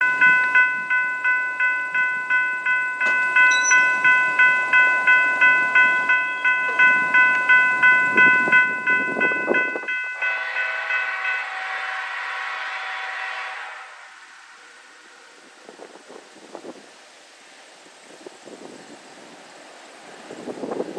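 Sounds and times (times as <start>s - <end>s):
railroad crossing bell ringing: 0.0s - 13.0s
train rolling past: 0.0s - 20.9s.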